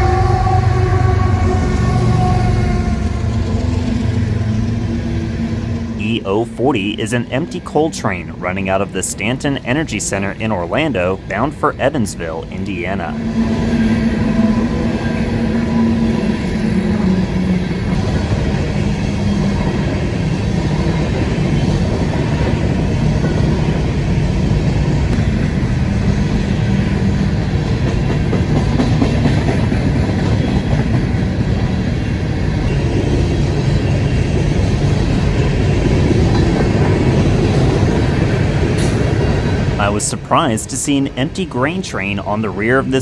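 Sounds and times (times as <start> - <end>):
train cars rumbling on rails: 0.0 - 43.0.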